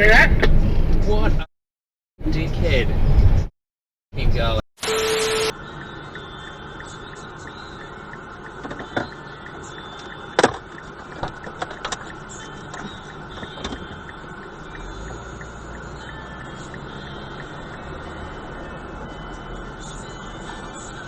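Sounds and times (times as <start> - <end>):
vehicle running noise: 4.2 - 21.0.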